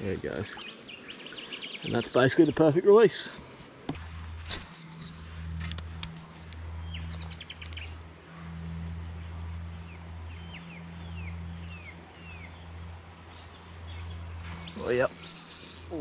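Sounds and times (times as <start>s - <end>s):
steady low hum: 3.4s - 16.0s.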